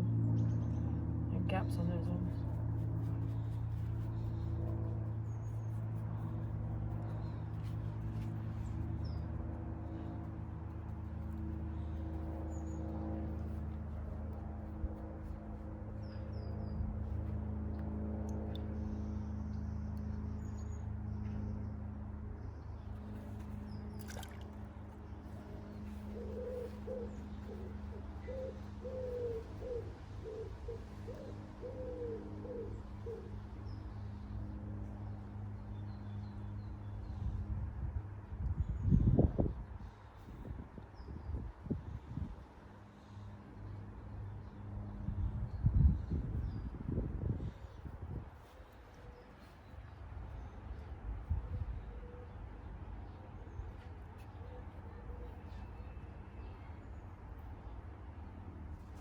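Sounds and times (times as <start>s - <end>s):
low mechanical hum: 0.0s - 59.0s
pigeon cooing: 26.0s - 33.3s.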